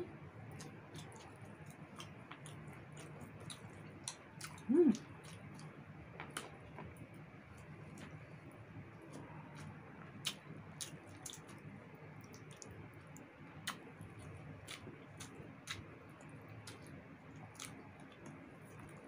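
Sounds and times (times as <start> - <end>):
chewing with wet mouth clicks: 0.5 - 7.0, 9.0 - 19.0
person humming: 4.7 - 5.0.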